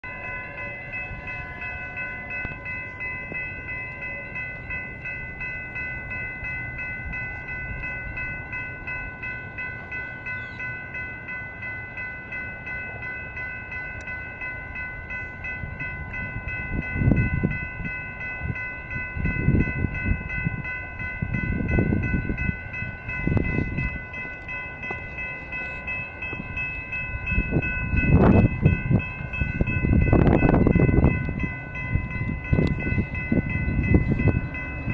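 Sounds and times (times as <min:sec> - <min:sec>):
crossing warning bells: 0:00.0 - 0:34.9
train rumble: 0:00.0 - 0:34.9.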